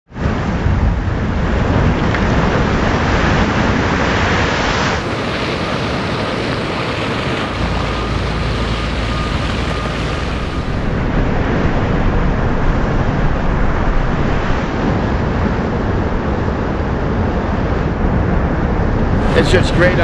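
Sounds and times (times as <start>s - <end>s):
waves breaking: 4.4s - 11.0s, 19.2s - 20.0s
wind buffeting microphone: 5.0s - 12.8s.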